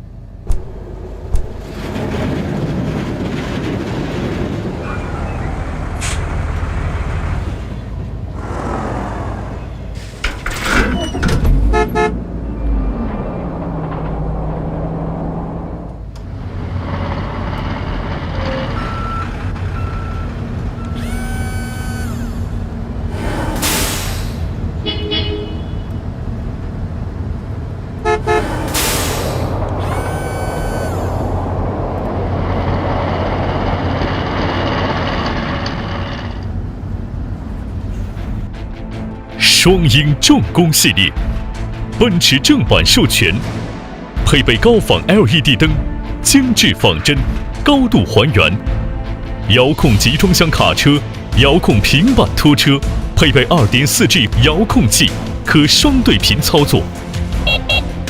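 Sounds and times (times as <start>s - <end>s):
low engine rumble: 0.0s - 8.4s, 25.8s - 40.0s
truck horn tooting: 11.6s - 12.2s, 24.8s - 26.0s, 28.0s - 28.6s, 57.4s - 58.0s
truck engine running: 11.7s - 24.8s, 26.0s - 40.0s
steady high tone: 20.9s - 22.6s, 29.7s - 31.4s
air brake hiss: 23.2s - 24.6s, 28.4s - 29.6s.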